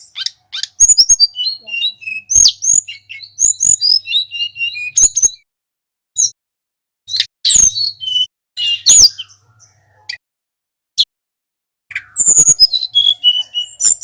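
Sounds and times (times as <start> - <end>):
bird singing: 0.0 - 5.5, 7.1 - 10.2, 11.9 - 14.0.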